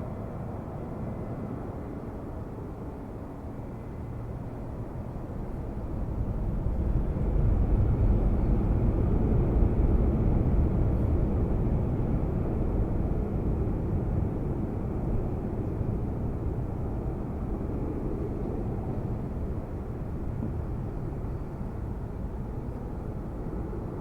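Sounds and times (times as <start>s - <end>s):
jet airliner engines rumbling: 0.0s - 24.0s.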